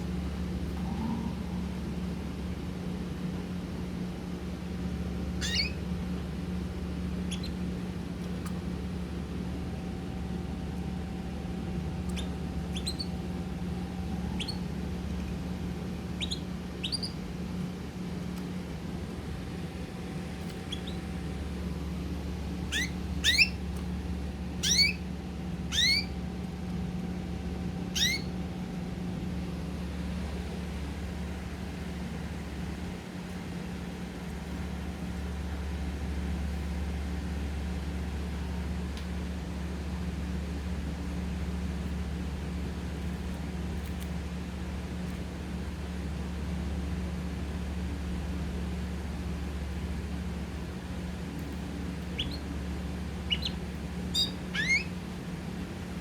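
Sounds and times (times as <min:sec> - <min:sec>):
steady low hum: 0:00.0 - 0:56.0
birds chirping: 0:05.4 - 0:05.9, 0:07.2 - 0:08.6, 0:11.9 - 0:15.0, 0:16.0 - 0:17.3, 0:20.5 - 0:21.3, 0:21.9 - 0:23.8, 0:24.5 - 0:26.2, 0:27.9 - 0:28.3, 0:51.4 - 0:55.6.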